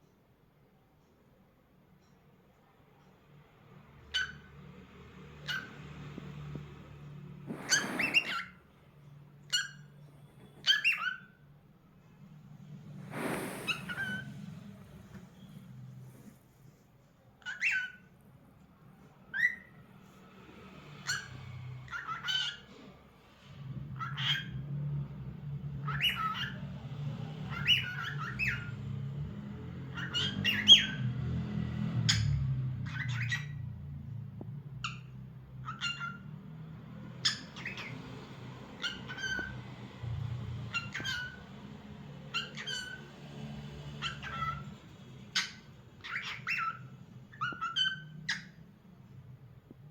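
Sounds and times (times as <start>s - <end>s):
cockatiel chirping: 4.1s - 4.5s, 5.4s - 5.8s, 7.5s - 8.6s, 9.4s - 11.4s, 12.9s - 16.3s, 17.4s - 18.1s, 19.3s - 19.8s, 21.0s - 22.7s, 24.0s - 24.5s, 25.8s - 26.7s, 27.4s - 28.8s, 29.9s - 31.0s, 31.9s - 33.6s, 34.8s - 36.3s, 37.1s - 39.6s, 40.6s - 41.5s, 42.3s - 43.0s, 44.0s - 48.7s.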